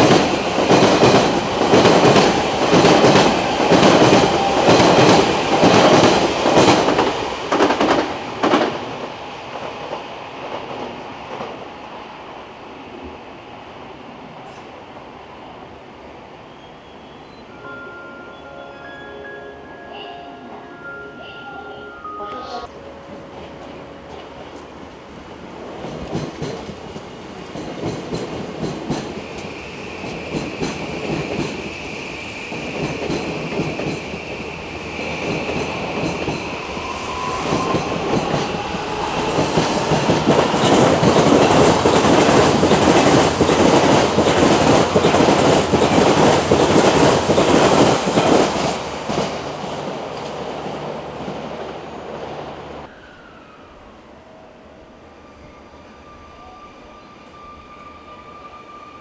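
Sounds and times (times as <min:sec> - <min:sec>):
train inverter whining: 0:00.0 - 0:09.1, 0:28.4 - 0:59.0.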